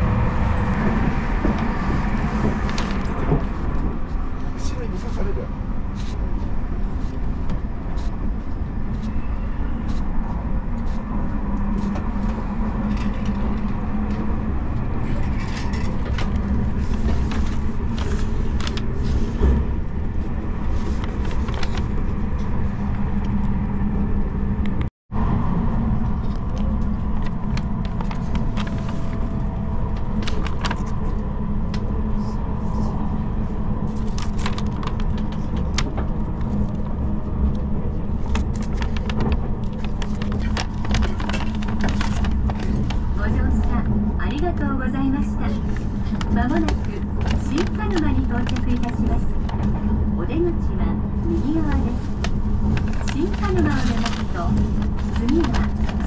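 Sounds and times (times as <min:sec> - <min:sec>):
train rumble from inside cabin: 0:00.0 - 0:56.0
rattles and clicks: 0:33.9 - 0:44.5, 0:51.4 - 0:56.0.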